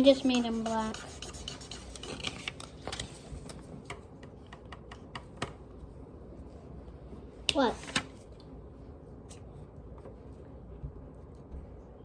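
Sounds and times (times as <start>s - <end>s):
marker tapping and scratching paper: 0.0s - 5.6s.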